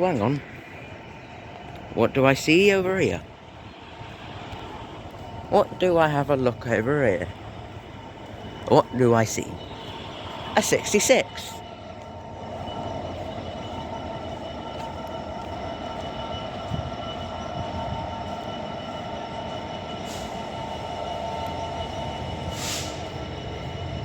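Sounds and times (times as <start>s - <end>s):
diesel freight train running: 0.0s - 24.0s
short hiss: 22.6s - 23.0s.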